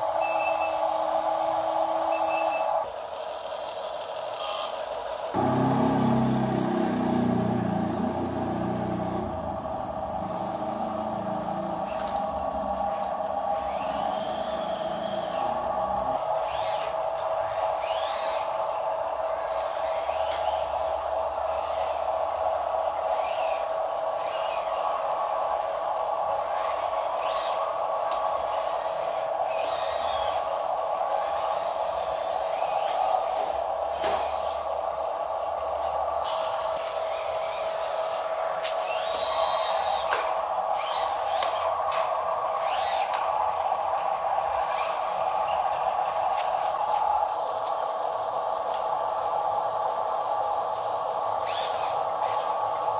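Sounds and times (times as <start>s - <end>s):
toy motor whining: 4.4s - 9.4s, 12.8s - 22.1s, 23.0s - 25.0s, 26.5s - 27.7s, 28.4s - 34.8s, 36.2s - 43.6s, 44.6s - 45.6s, 51.4s - 52.6s
deep hum: 5.4s - 13.0s.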